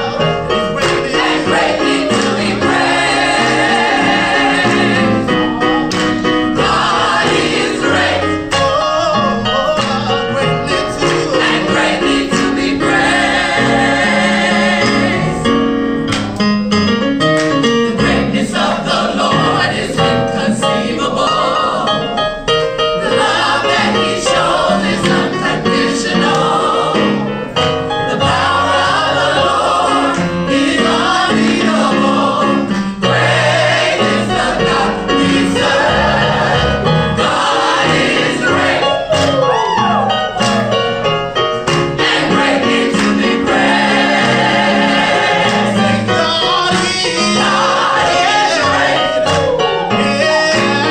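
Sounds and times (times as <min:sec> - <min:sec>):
gospel choir singing: 0:00.0 - 0:16.0, 0:17.6 - 0:50.9
instrumental accompaniment: 0:00.0 - 0:50.9.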